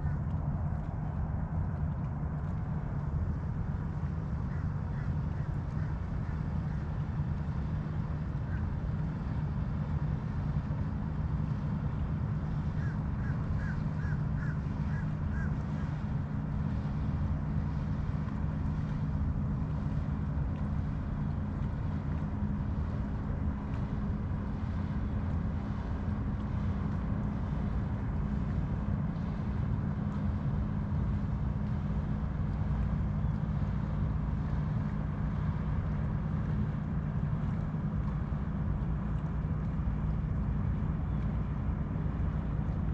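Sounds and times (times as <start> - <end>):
boat engine droning: 0.0 - 42.9
bird calling: 12.8 - 15.9.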